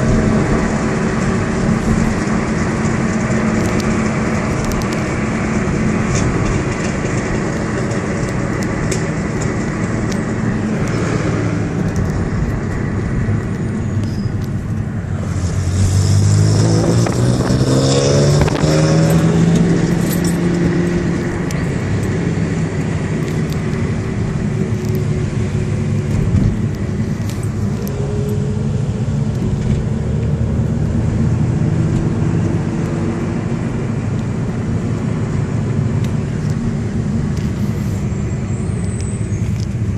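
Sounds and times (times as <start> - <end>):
sports car engine revving: 15.1 - 38.1.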